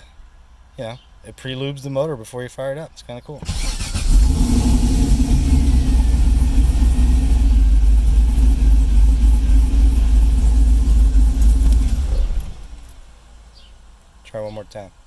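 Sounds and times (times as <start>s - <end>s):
car engine idling with deep exhaust: 4.2s - 14.0s.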